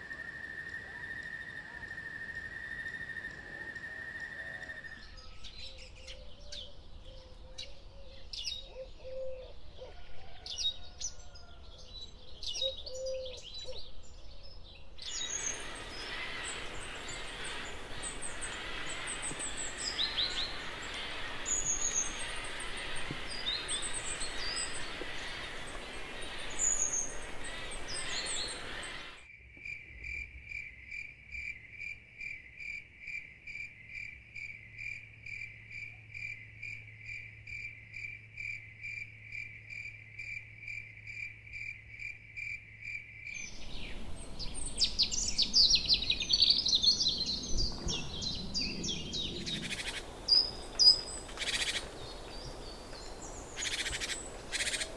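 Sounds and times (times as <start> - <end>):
low hooting bird calls: 2.8 - 11.7, 12.3 - 13.9, 15.1 - 29.2, 43.4 - 54.9
high chirping bird chorus: 10.7 - 29.2, 43.4 - 54.9
background hiss: 15.0 - 29.3, 43.4 - 54.9
cricket trilling: 15.1 - 31.0, 49.1 - 54.9.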